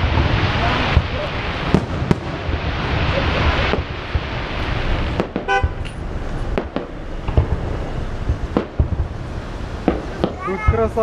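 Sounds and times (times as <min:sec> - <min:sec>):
fireworks popping: 0:00.0 - 0:11.0
steady wash of noise: 0:00.0 - 0:11.0
car horn toot: 0:05.5 - 0:05.9.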